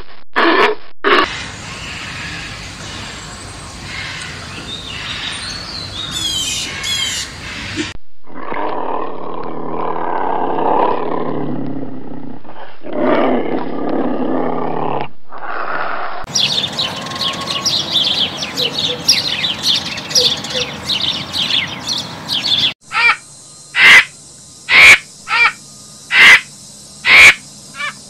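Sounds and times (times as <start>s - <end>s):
bird calls gliding in pitch: 16.3s - 24.1s
small birds chirping rapidly: 16.3s - 28.0s.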